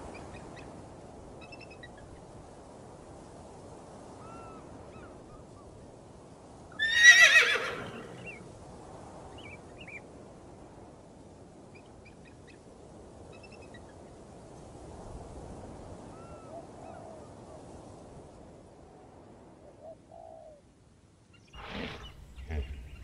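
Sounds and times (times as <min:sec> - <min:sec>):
faint steady hiss: 0:00.0 - 0:23.0
horse whinnying: 0:06.8 - 0:08.4, 0:21.6 - 0:23.0.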